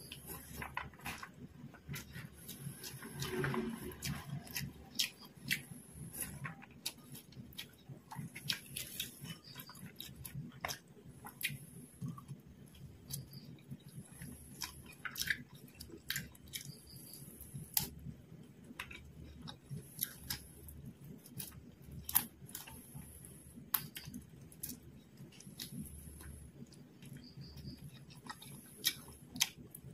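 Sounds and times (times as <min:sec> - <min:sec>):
woman chewing and crunching food: 0:00.0 - 0:29.9.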